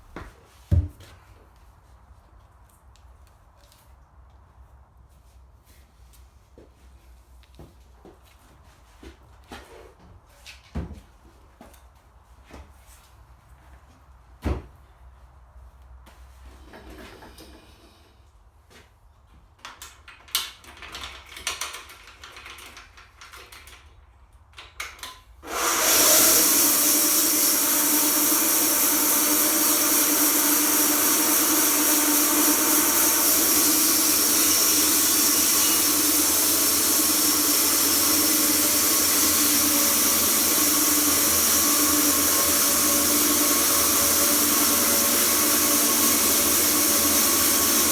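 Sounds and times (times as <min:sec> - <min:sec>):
sawmill running: 0:25.4 - 0:47.9.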